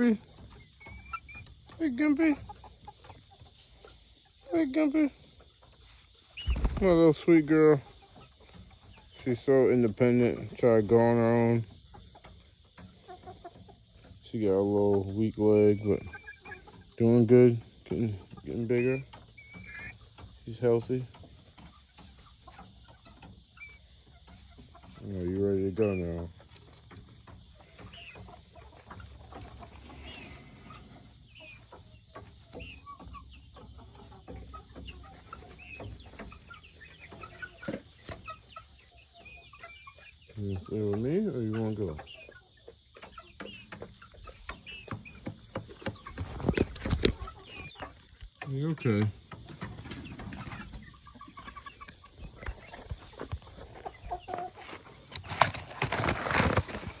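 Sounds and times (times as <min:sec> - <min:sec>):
chicks peeping and clucking: 0:00.0 - 0:57.0
rustling: 0:49.9 - 0:57.0.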